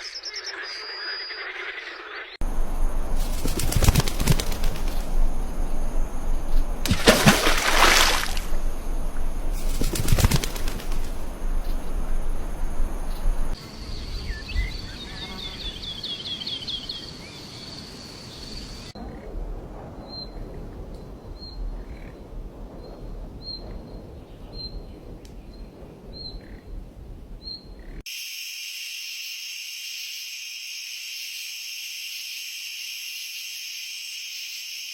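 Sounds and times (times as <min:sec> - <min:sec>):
bird wings flapping: 0:02.4 - 0:13.6.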